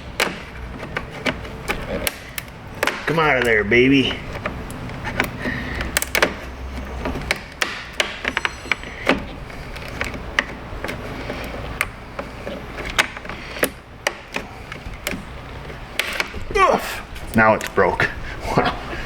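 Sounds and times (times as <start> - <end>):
plastic clips clicking: 0.0 - 8.4, 9.0 - 16.5, 17.1 - 17.9.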